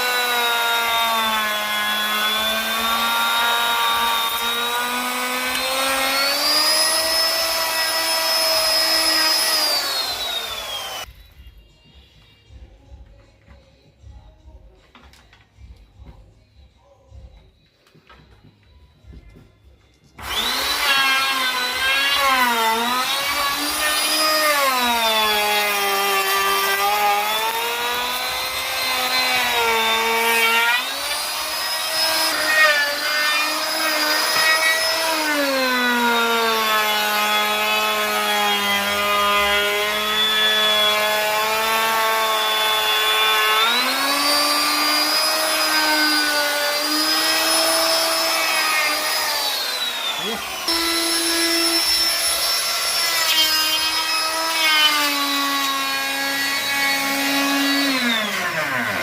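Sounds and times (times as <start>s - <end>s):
wood router cutting wood: 0.0s - 11.1s, 20.2s - 59.0s.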